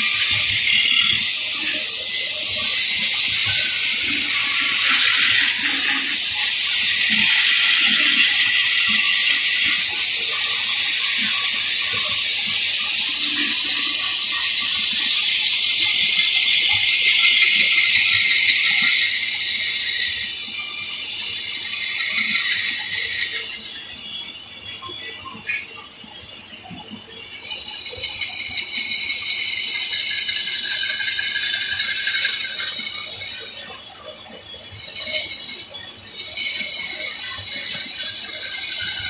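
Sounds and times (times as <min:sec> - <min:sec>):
loud hissing: 0:00.0 - 0:20.3.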